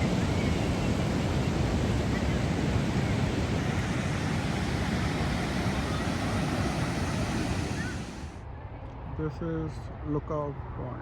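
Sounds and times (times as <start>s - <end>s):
ocean waves breaking: 0.0s - 8.4s
wind on microphone: 0.0s - 8.4s.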